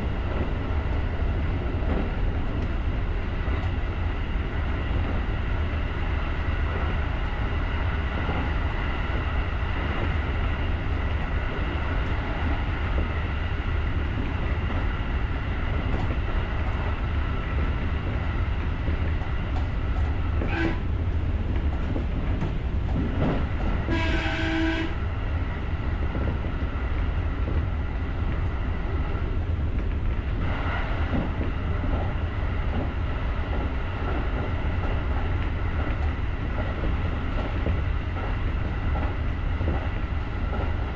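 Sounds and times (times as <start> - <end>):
train wheels rumbling on rail: 0.0 - 40.9
train horn blast: 20.4 - 20.9, 23.9 - 25.0.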